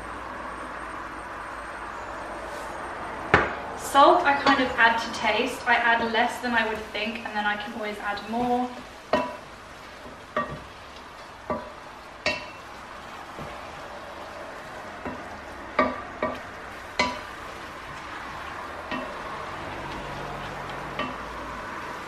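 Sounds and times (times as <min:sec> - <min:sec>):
meat and vegetables sizzling in pot: 0:03.9 - 0:22.0
wooden spoon stirring: 0:05.2 - 0:22.0
spoon knocking against pot: 0:10.4 - 0:10.7, 0:11.5 - 0:12.6, 0:17.0 - 0:17.3.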